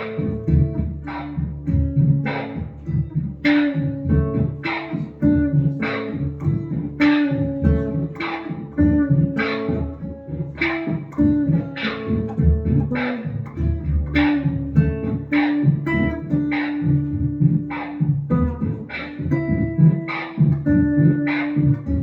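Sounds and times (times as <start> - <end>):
synth guitar plucked notes: 0.0 - 22.0.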